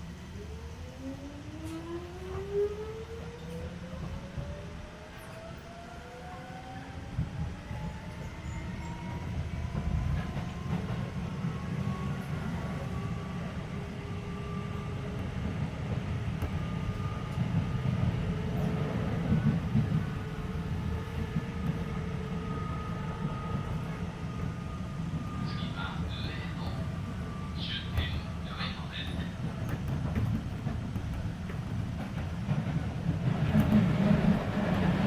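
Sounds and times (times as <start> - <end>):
wheels rumbling on rail: 0.0 - 35.0.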